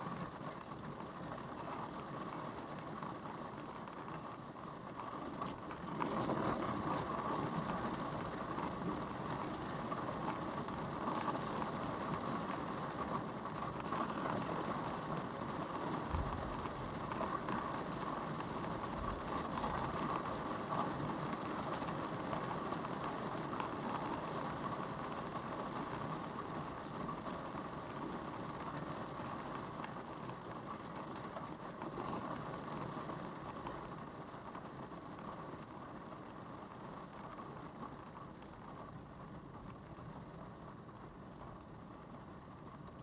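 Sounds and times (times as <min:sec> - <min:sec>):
rain: 0:00.0 - 0:43.0
tornado winds: 0:16.1 - 0:20.1.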